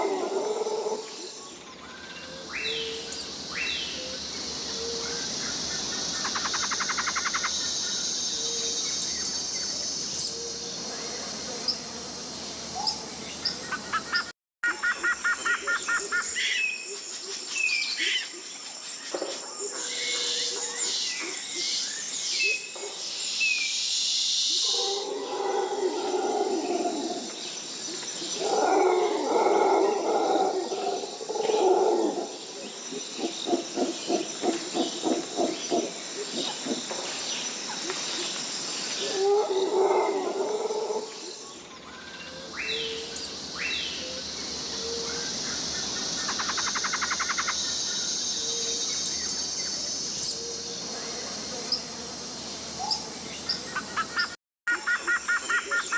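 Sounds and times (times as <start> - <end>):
high bird calls: 1.8 - 9.2
high insect buzz: 2.2 - 14.3, 42.2 - 54.3.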